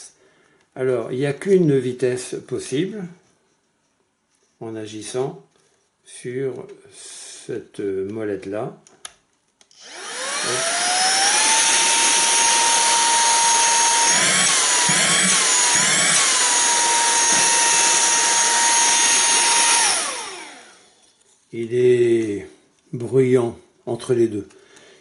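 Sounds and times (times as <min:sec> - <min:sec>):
handheld vacuum motor whining: 0:09.8 - 0:21.2.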